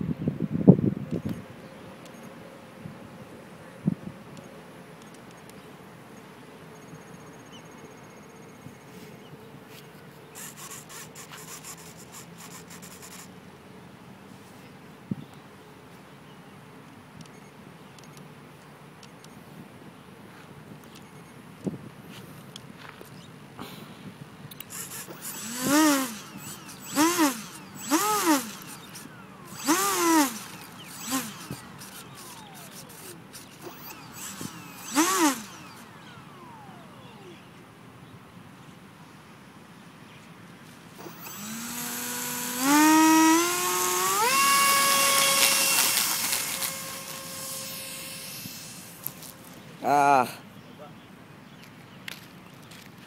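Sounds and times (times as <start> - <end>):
electric fan motor whining: 24.6 - 37.6, 41.0 - 49.6.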